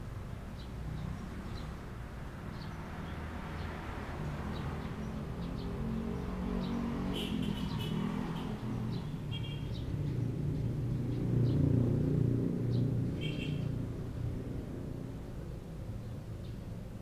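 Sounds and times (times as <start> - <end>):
small birds chirping: 0.3 - 12.0, 12.6 - 13.8.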